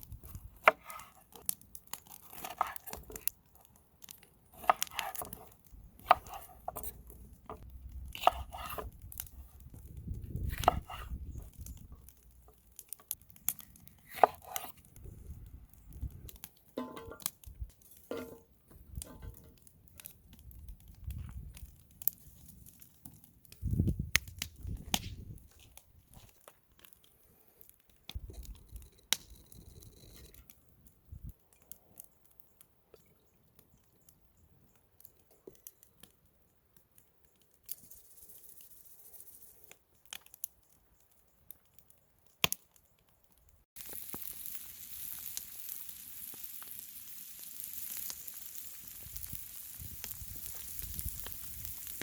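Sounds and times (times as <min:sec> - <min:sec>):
food sizzling in oil: 0:43.8 - 0:52.0.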